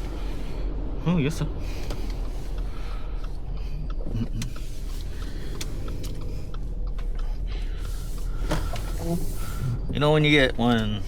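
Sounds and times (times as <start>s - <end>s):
engine and road noise rumble: 0.0s - 11.0s
sharp clicks: 1.9s - 7.3s.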